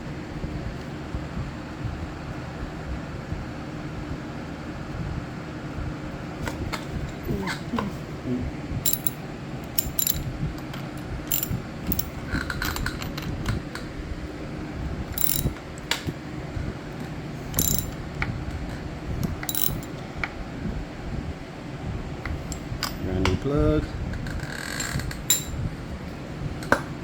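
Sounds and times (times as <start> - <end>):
hand tool metallic clicks: 8.9 - 10.2, 11.3 - 12.1, 15.2 - 15.5, 17.6 - 18.0, 19.5 - 19.9, 25.3 - 25.5.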